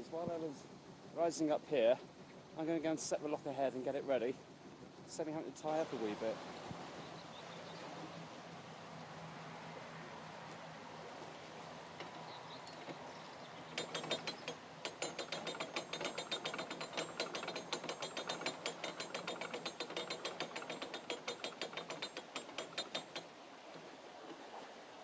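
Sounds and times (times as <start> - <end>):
ratchet pawl clicking: 13.7 - 23.2.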